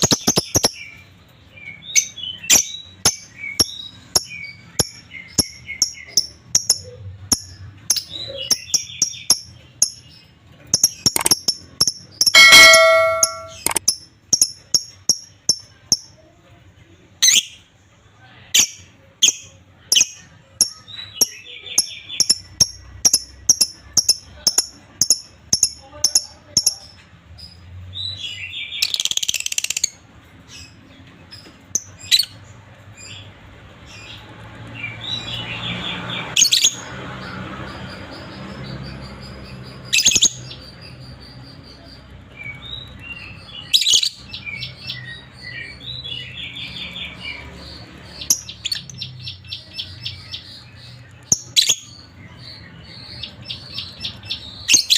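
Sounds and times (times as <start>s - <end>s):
lovebirds chattering trills: 0.0s - 16.1s
lovebirds chirping: 0.0s - 16.3s, 18.6s - 54.9s.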